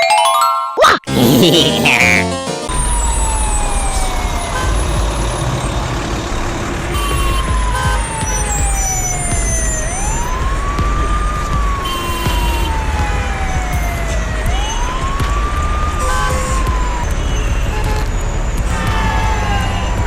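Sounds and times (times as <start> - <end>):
siren wailing: 2.7 - 6.0, 6.9 - 17.8, 18.8 - 20.0.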